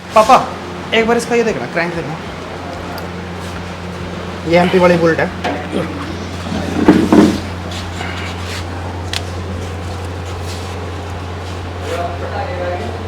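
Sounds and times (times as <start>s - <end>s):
steady low hum: 0.0s - 13.0s
engine parts clunking: 1.2s - 11.3s.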